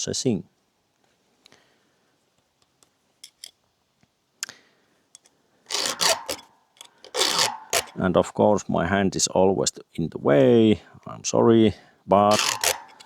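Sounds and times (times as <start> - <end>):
rasping file strokes: 5.7 - 6.5, 7.1 - 8.0, 12.3 - 13.0
file clicking on chain cutters: 5.7 - 8.0, 12.3 - 13.0.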